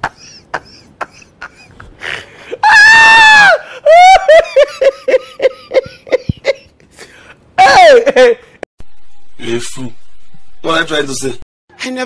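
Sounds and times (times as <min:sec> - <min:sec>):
person laughing hard: 0:00.0 - 0:06.7, 0:07.6 - 0:08.5.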